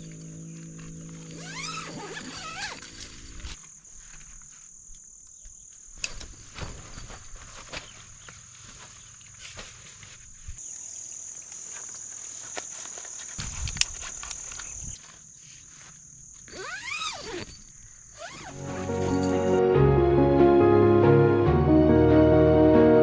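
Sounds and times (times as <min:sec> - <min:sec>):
insects chirring: 0:00.0 - 0:09.4, 0:10.1 - 0:19.6.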